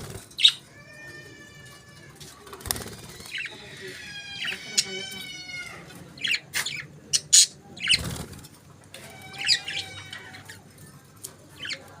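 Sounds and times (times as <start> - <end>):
wings fluttering: 2.3 - 3.8, 7.9 - 8.6
budgerigars chirping: 6.2 - 8.2, 9.2 - 10.6.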